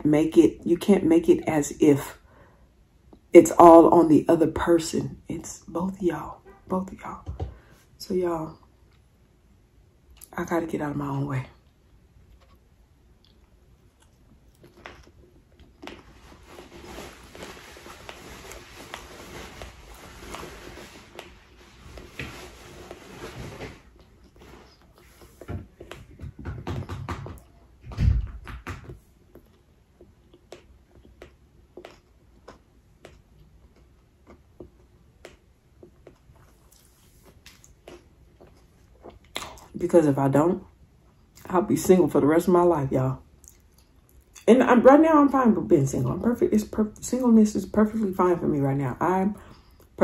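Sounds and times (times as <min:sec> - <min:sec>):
wet chewing mouth sounds: 0:12.3 - 0:19.0, 0:29.3 - 0:39.7
sticky chewing mouth clicks: 0:29.3 - 0:36.9.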